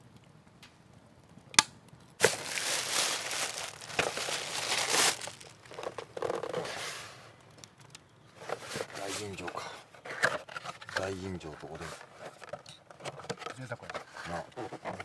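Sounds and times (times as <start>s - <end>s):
packaging crinkling and rustling: 2.2s - 6.9s.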